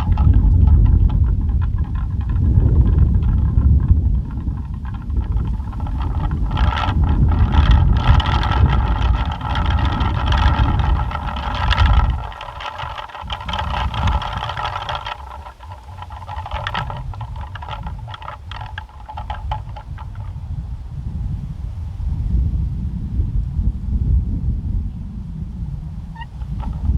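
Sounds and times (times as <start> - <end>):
pinwheel whirring rattle: 0.0 - 20.3, 26.2 - 26.9
wind rumble on microphone: 0.0 - 26.9.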